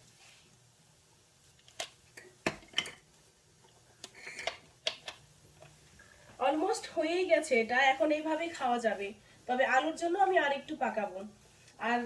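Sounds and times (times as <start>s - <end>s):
pot or utensil clatter: 2.4s - 3.0s.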